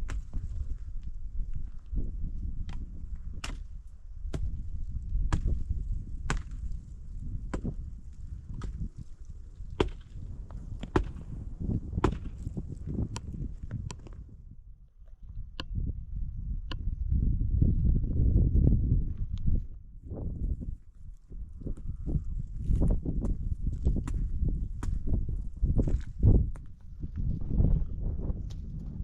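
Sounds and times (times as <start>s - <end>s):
axe chopping firewood: 0.1s - 0.4s, 2.7s - 4.6s, 5.2s - 6.8s, 7.4s - 7.8s, 8.5s - 9.0s, 9.6s - 14.2s, 23.8s - 25.1s.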